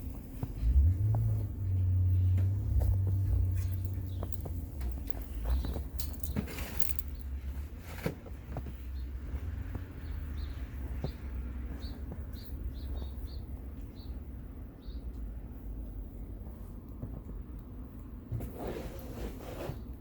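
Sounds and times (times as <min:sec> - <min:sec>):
steady low rumble: 0:00.0 - 0:18.3
small bird chirping: 0:03.4 - 0:07.4, 0:10.0 - 0:14.2.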